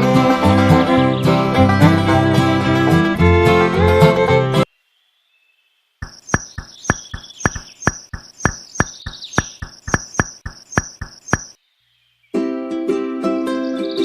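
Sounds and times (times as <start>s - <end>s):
insect chirping: 4.7s - 12.2s.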